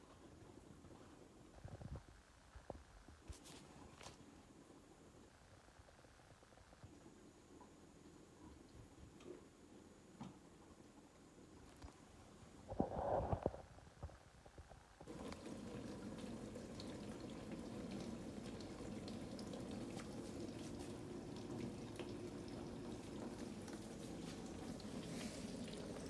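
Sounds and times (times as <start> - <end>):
dishwasher water rushing: 15.1 - 26.0.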